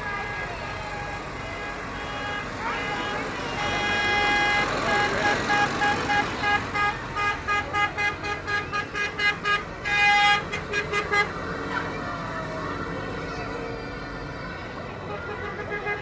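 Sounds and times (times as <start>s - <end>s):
vehicle horn beeping: 0.0s - 11.4s, 15.1s - 16.0s.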